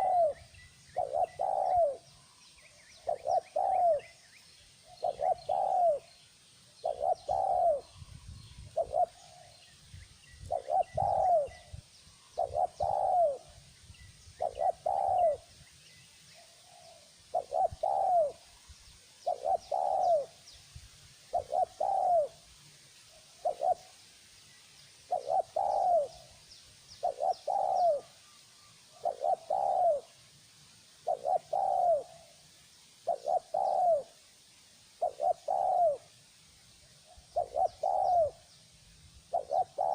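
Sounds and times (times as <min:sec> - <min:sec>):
dove cooing: 0:00.0 - 0:02.1, 0:03.0 - 0:04.2, 0:04.8 - 0:06.2, 0:06.8 - 0:08.1, 0:08.7 - 0:09.5, 0:10.4 - 0:13.6, 0:14.4 - 0:15.5, 0:16.6 - 0:18.5, 0:19.2 - 0:20.4, 0:21.3 - 0:22.4, 0:23.4 - 0:23.9, 0:25.1 - 0:26.4, 0:27.0 - 0:28.2, 0:28.9 - 0:30.2, 0:31.0 - 0:32.4, 0:33.0 - 0:34.2, 0:35.0 - 0:36.1, 0:37.0 - 0:38.5, 0:39.3 - 0:39.9
faint small bird chirps: 0:00.0 - 0:30.2, 0:30.8 - 0:39.9.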